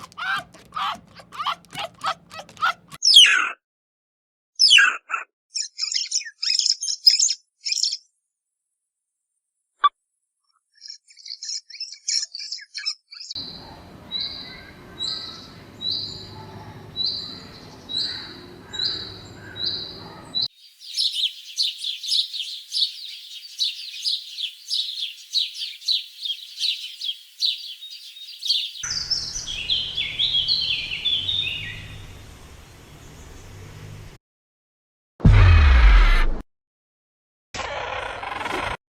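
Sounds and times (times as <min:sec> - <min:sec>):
small birds chirping: 0:00.0 - 0:03.0, 0:10.8 - 0:32.2.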